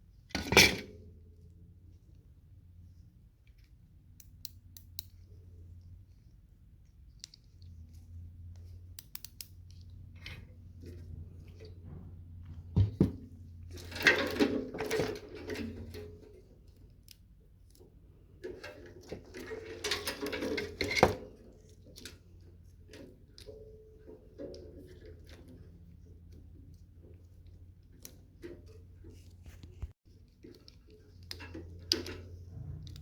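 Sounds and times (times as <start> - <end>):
scraping and rattling metal: 10.1 - 16.6, 18.2 - 26.2.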